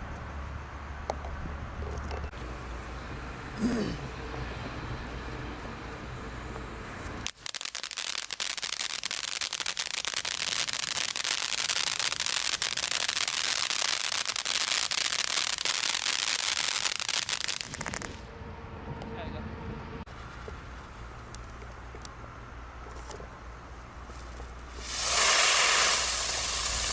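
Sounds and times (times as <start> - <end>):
firework crackling: 7.2 - 18.3, 24.0 - 26.9.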